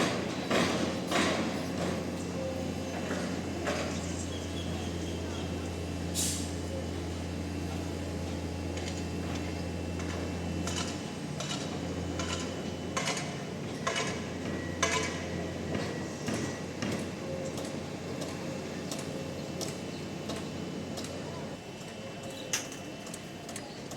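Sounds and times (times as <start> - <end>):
heavy machine engine humming: 0.0 - 22.3
metallic clanks and knocks: 10.0 - 18.3.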